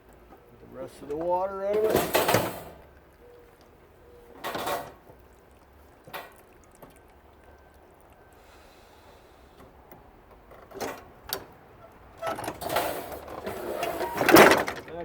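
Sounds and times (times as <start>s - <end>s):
water sloshing and knocking: 1.2s - 3.0s, 4.4s - 7.4s.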